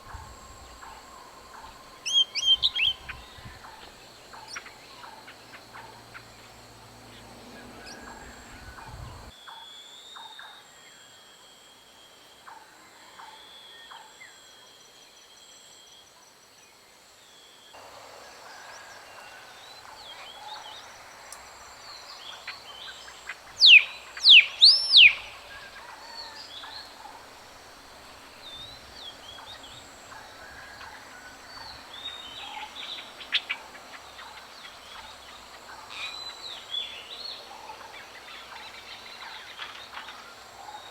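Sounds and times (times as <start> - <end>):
wild birds calling: 0.0 - 9.3, 17.8 - 40.9
high insect drone: 0.0 - 9.4, 17.3 - 40.9.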